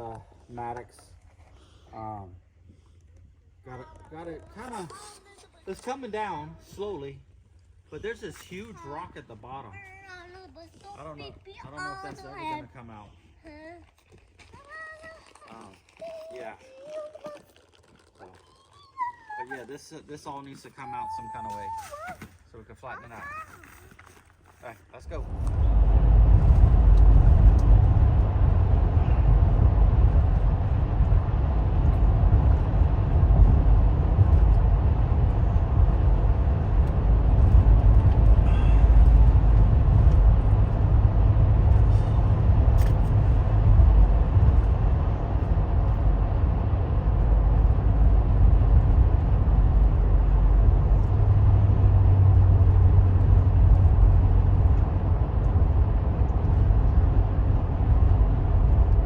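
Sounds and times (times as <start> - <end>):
vehicle engine and road rumble: 22.1 - 59.0.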